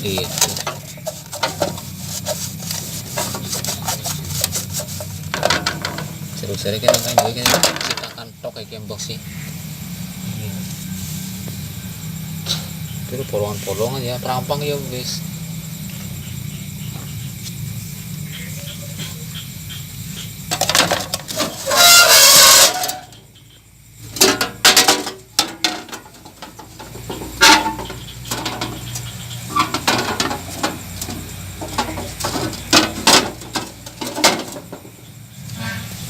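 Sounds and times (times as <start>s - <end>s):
tools clicking and scraping on metal: 0.0s - 6.1s, 24.2s - 34.9s.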